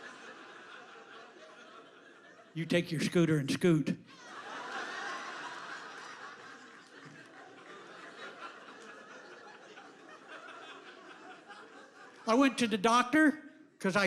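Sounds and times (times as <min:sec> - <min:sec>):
audience laughing: 0:00.0 - 0:12.8.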